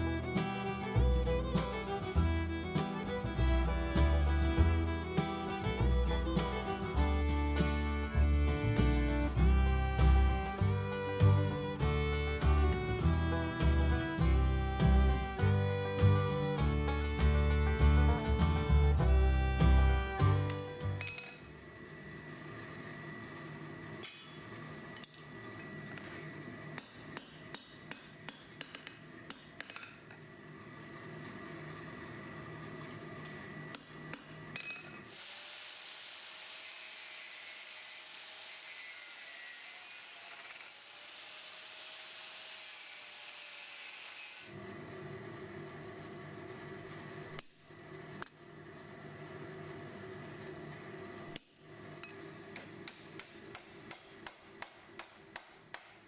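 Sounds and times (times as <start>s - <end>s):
steady low hum: 0.0s - 22.3s
hammer striking metal on anvil: 21.0s - 21.4s, 26.8s - 30.0s, 52.8s - 56.0s.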